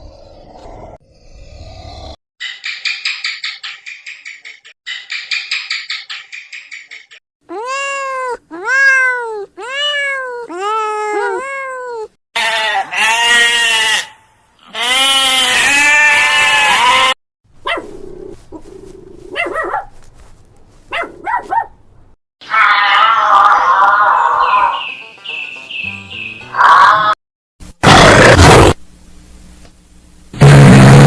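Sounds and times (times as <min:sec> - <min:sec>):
harsh animal calls: 0:12.4 - 0:17.2, 0:22.4 - 0:24.9.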